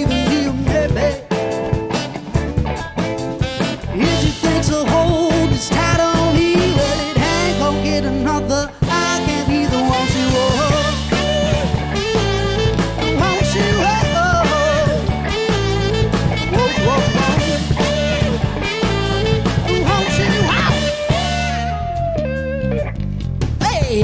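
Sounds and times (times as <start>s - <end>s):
person singing: 0.0s - 1.5s, 4.0s - 12.4s, 13.0s - 15.6s, 16.4s - 21.7s
bass and drums: 0.0s - 24.0s
wavering lead melody: 2.4s - 22.9s.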